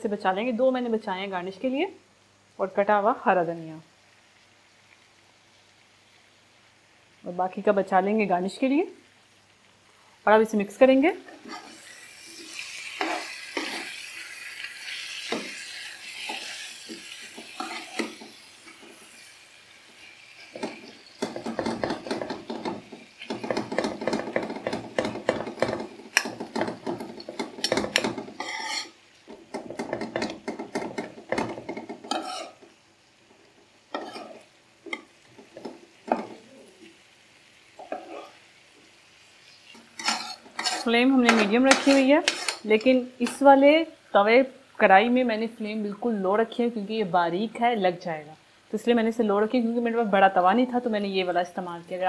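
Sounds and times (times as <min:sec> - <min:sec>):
food sizzling in a pan: 0:00.0 - 0:52.0
spatula scraping metal pan: 0:11.3 - 0:19.3, 0:20.4 - 0:32.6, 0:33.9 - 0:34.5, 0:39.7 - 0:43.4.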